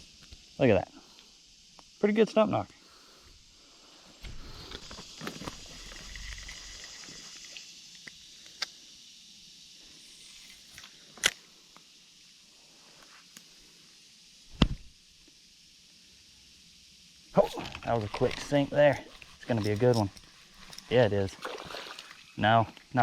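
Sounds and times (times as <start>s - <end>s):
fishing reel whirring: 4.4s - 8.0s, 10.0s - 11.3s, 17.6s - 22.4s.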